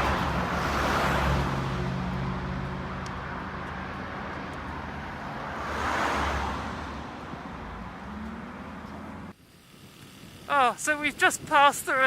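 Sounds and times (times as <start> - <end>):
wind and road noise: 0.0 - 12.0
small motorbike engine running: 8.8 - 12.0.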